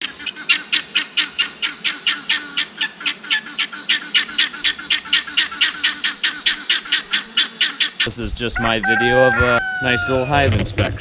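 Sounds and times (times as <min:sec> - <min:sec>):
bird calling harsh notes: 0:00.0 - 0:10.4.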